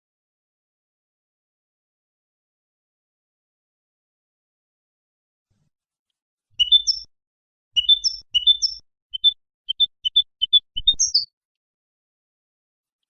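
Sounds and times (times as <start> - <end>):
goldfinch twittering song: 6.6 - 7.1, 7.8 - 11.3.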